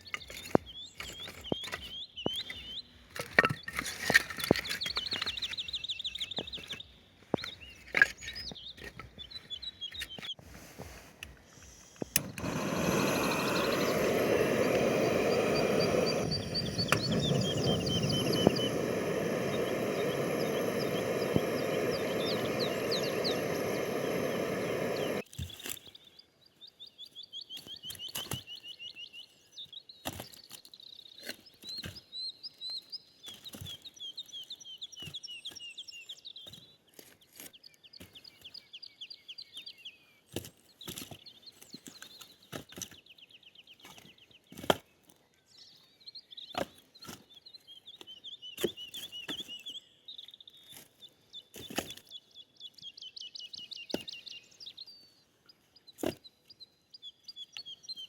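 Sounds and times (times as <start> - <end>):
songbirds trilling: 12.0 - 25.8
loud steady rushing noise: 12.2 - 25.2.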